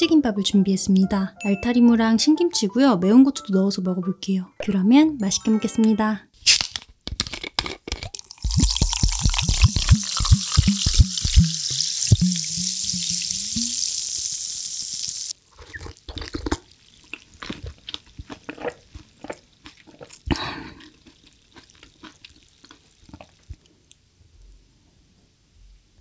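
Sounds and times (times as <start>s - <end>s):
cooking food hissing: 8.3s - 15.4s.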